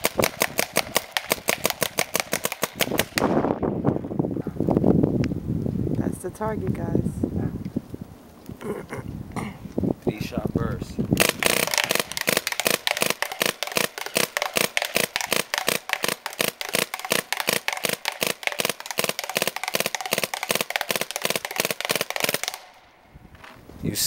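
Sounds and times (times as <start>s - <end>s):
paintball marker firing rapid shots: 0.0s - 3.4s, 11.2s - 22.7s.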